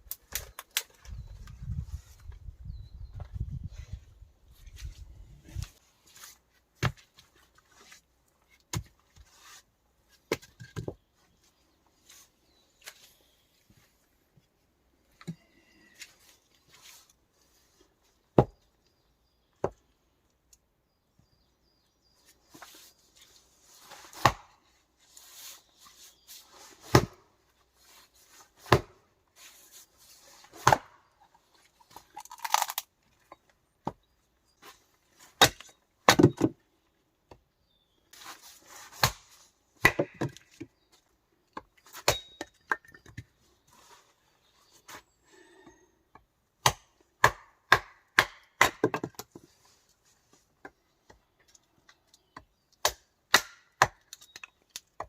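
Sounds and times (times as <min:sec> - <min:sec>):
rustling and scraping: 0:00.8 - 0:15.2, 0:15.9 - 0:18.2, 0:22.2 - 0:28.7, 0:29.3 - 0:32.3, 0:38.1 - 0:39.6, 0:43.4 - 0:45.2
wood being chopped: 0:18.4 - 0:18.6, 0:24.1 - 0:24.6, 0:26.9 - 0:27.3, 0:28.6 - 0:29.0, 0:30.6 - 0:31.0, 0:35.4 - 0:36.6, 0:38.9 - 0:40.7, 0:41.6 - 0:43.3, 0:46.6 - 0:49.4, 0:52.4 - 0:55.0.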